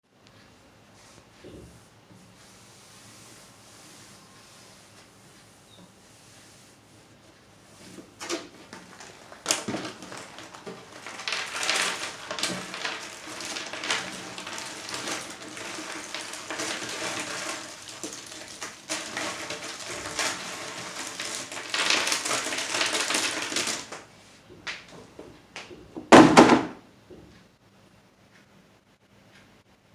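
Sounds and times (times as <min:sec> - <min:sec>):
puzzle pieces clicking and rustling: 0:09.0 - 0:24.0.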